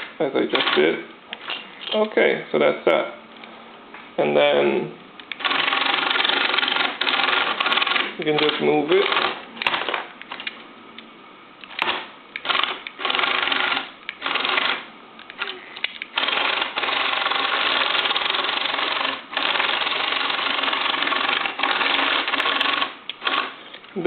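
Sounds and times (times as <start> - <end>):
toy electric motors whirring: 0.5 - 2.0, 5.3 - 10.6, 11.7 - 23.7.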